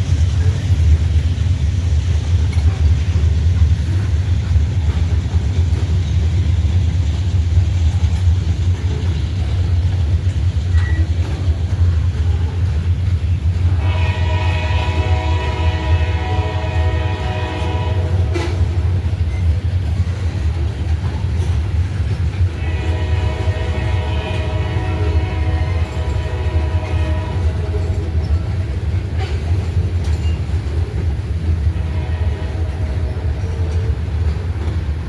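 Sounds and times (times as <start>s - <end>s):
train rumbling: 0.0s - 35.0s
locomotive air horn: 13.7s - 19.1s, 22.5s - 29.5s, 31.6s - 34.6s.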